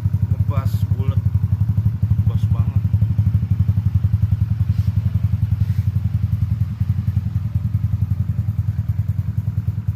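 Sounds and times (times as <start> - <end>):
scooter engine idling: 0.0 - 9.9.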